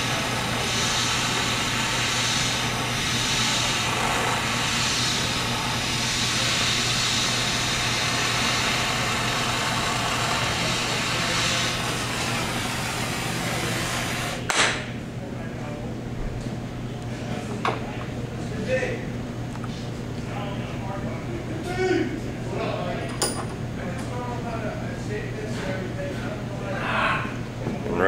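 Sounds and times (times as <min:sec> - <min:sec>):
gas torch hissing: 0:00.0 - 0:14.5.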